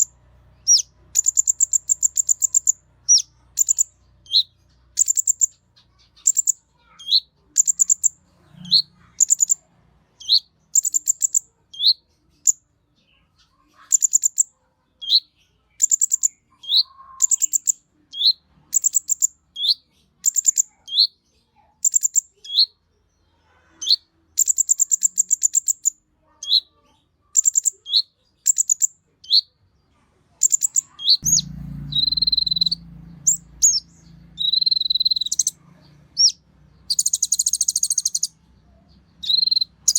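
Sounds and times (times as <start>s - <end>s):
sunbird song: 0.0s - 29.6s, 30.4s - 39.9s
low rumble: 31.2s - 34.6s.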